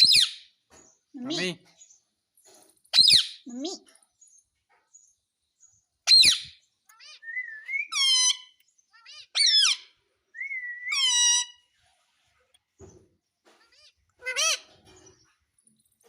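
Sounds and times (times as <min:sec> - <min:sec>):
parrot whistled calls: 0:03.0 - 0:03.4, 0:06.0 - 0:11.6.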